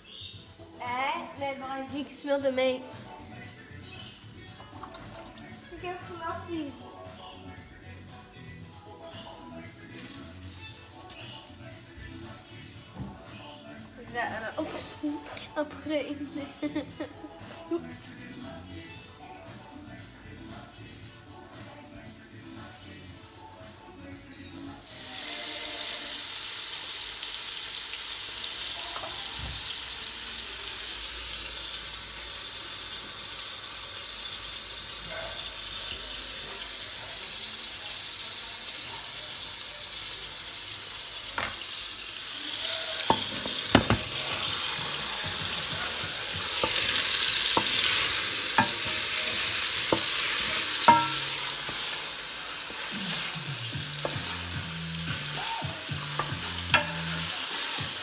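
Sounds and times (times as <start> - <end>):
meatballs sizzling in oil: 24.7 - 58.0
wooden spoon knocking pot: 43.1 - 44.2, 50.9 - 51.8.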